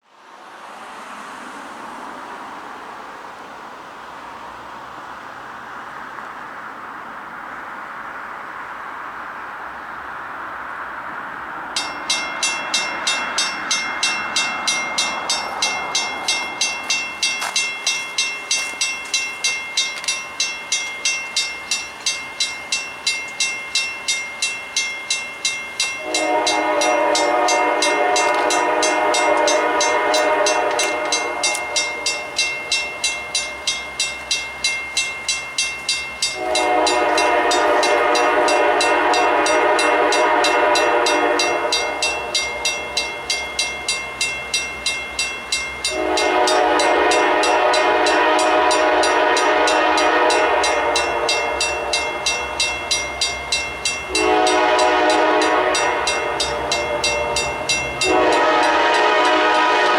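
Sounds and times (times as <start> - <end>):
railroad crossing bells ringing: 1.0 - 59.9
locomotive horn blasts: 25.9 - 33.7, 36.3 - 44.2, 45.8 - 59.9.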